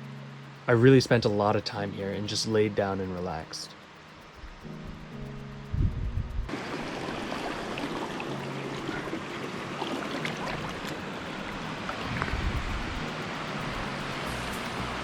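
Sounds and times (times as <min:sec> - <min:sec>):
low thumps: 0:04.4 - 0:06.5
water splashes and drips: 0:06.5 - 0:12.4
water rushing: 0:06.5 - 0:15.0.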